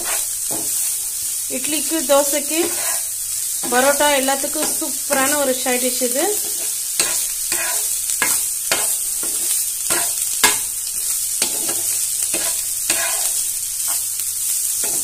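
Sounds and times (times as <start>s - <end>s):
metal spatula scraping pan: 0.0s - 1.0s, 2.5s - 4.0s, 6.4s - 14.1s, 14.8s - 15.0s
chicken sizzling on a pan: 0.0s - 15.0s.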